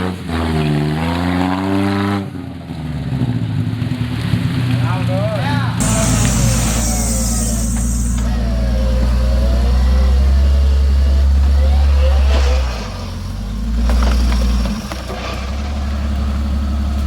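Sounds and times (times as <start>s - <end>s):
high hiss: 5.8s - 9.1s
vehicle engine running under load: 5.8s - 17.0s.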